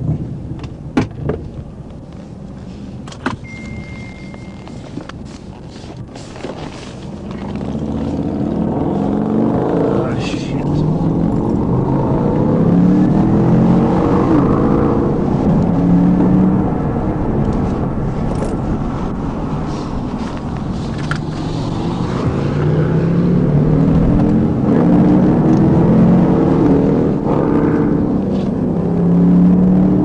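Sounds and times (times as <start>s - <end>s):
road noise: 0.0s - 30.0s
car engine accelerating: 6.6s - 30.0s.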